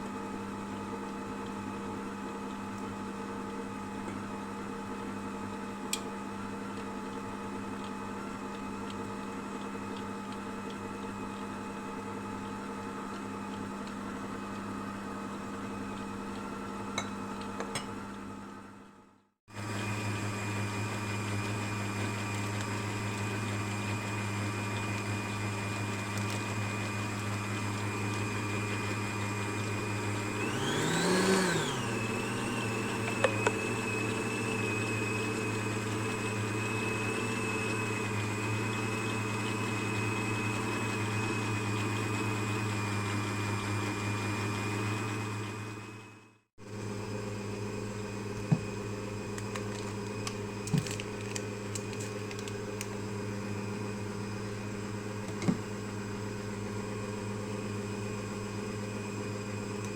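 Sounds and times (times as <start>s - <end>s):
electric mixer whining: 19.5s - 59.9s.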